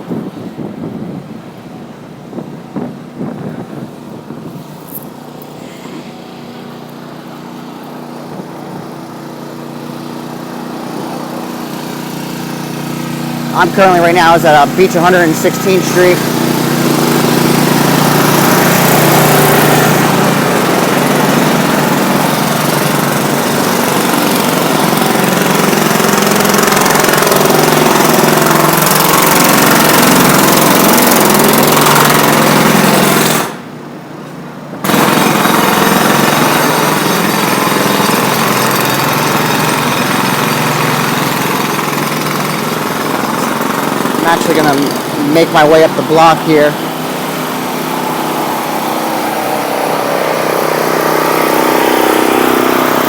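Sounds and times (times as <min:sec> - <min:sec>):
machinery rattling: 0:09.8 - 0:33.6, 0:34.8 - 0:53.0.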